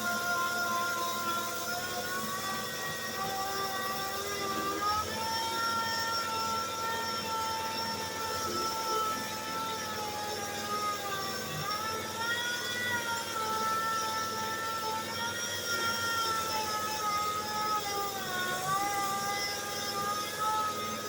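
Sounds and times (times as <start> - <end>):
electric grinder whining: 0.0 - 21.0.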